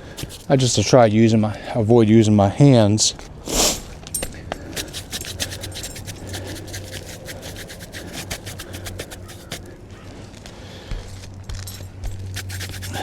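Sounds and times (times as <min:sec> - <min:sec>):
brush scratching on roof shingles: 0:00.0 - 0:00.9, 0:04.7 - 0:09.7, 0:12.3 - 0:13.0.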